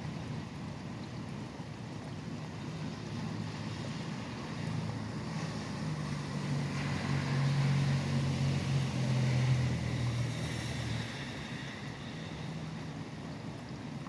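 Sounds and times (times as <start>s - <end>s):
rain hiss: 0.0s - 14.0s
vehicle passing on highway: 3.4s - 13.2s.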